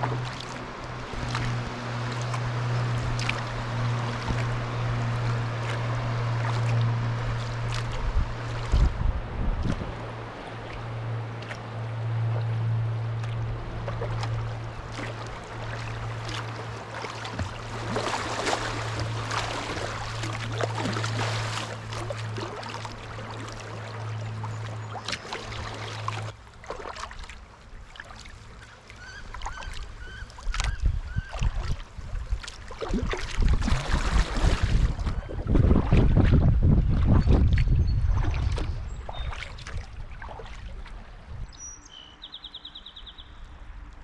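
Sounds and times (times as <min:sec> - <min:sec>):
steady low hum: 0:00.0 - 0:26.6
water splashing around paddle: 0:00.0 - 0:41.7
wind buffeting microphone: 0:01.1 - 0:11.1, 0:30.5 - 0:41.6
bird calling: 0:28.6 - 0:31.4.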